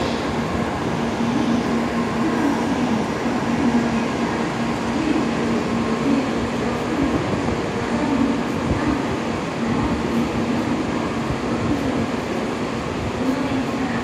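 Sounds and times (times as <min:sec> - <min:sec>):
train rolling rumble: 0:00.0 - 0:14.0.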